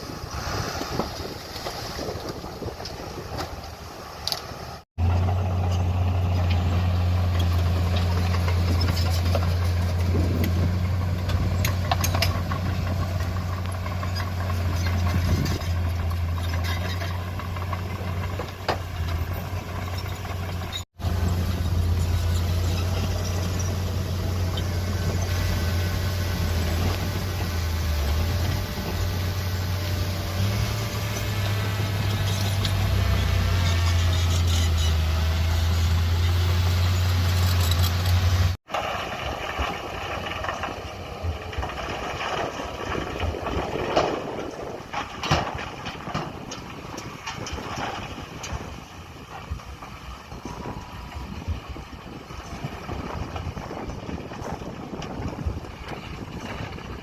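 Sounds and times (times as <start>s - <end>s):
wind noise: 0.0s - 4.8s, 6.2s - 57.0s
heavy diesel machinery drone: 3.7s - 46.2s.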